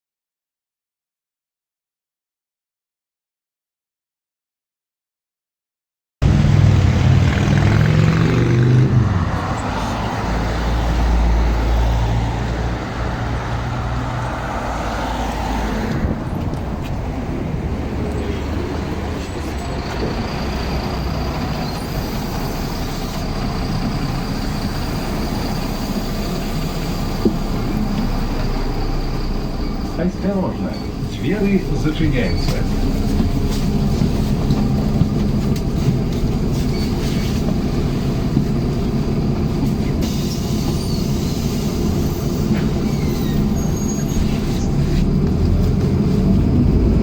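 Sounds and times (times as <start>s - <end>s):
bus diesel engine rumble: 6.2s - 47.0s.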